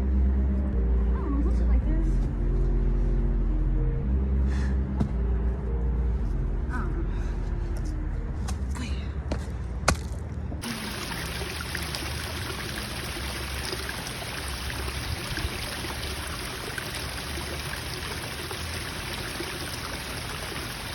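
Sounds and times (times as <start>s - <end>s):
running water rushing: 10.6s - 20.9s.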